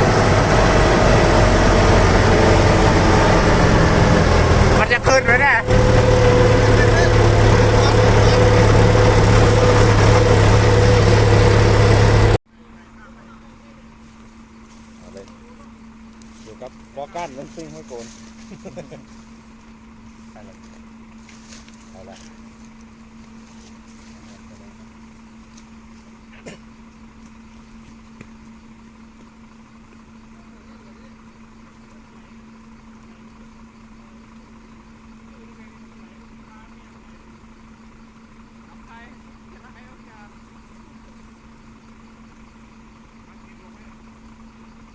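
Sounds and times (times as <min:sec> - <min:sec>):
truck diesel engine running: 0:00.0 - 0:44.9.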